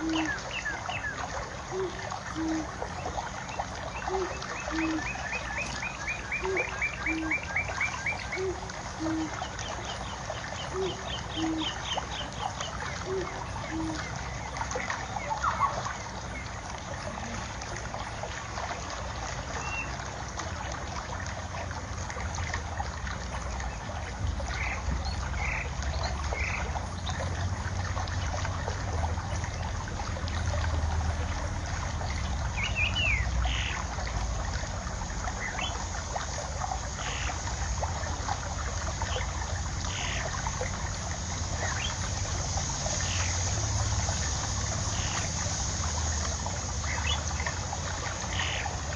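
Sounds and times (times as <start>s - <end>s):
water trickling: 0.0s - 48.9s.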